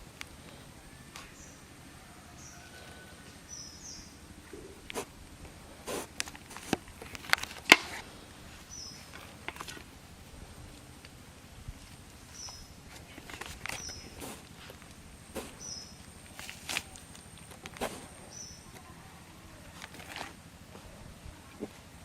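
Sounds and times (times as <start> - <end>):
quiet outdoor ambience: 0.0 - 22.0.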